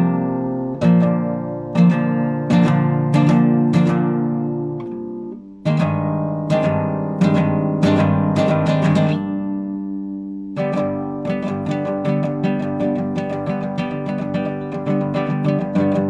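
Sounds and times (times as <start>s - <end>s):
classical guitar chords: 0.0s - 16.0s.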